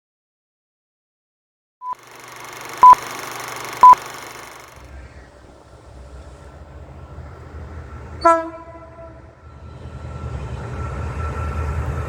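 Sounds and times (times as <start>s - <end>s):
loud electronic beeps: 1.8s - 4.8s
diesel locomotive engine rumble: 2.3s - 12.0s.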